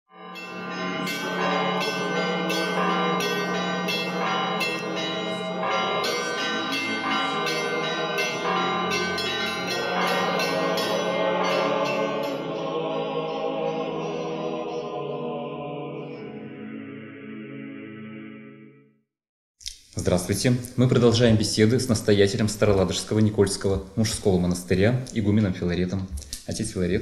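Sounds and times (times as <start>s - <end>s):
church bells pealing: 0.1s - 14.9s.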